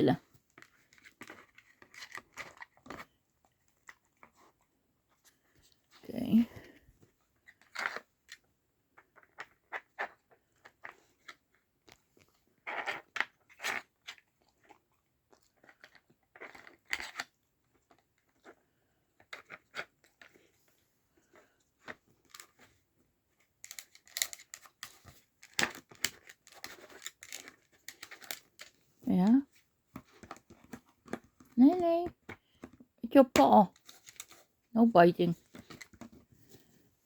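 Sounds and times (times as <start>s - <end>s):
plastic puzzle pieces clicking: 23.6s - 28.8s.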